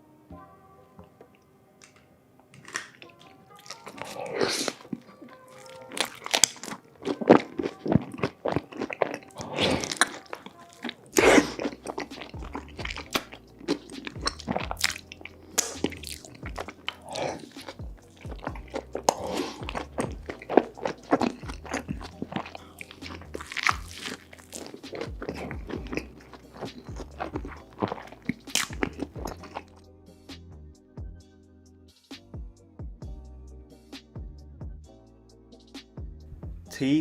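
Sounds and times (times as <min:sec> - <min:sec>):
person chewing crunchy food: 0:02.6 - 0:29.8
background music with bass line: 0:11.1 - 0:37.0.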